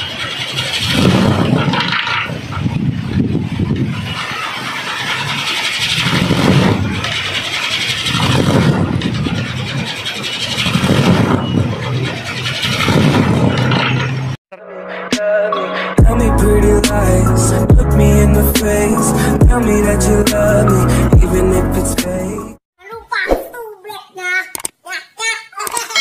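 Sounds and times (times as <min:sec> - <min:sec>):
propeller spinner whirring in wind: 0:00.0 - 0:14.4.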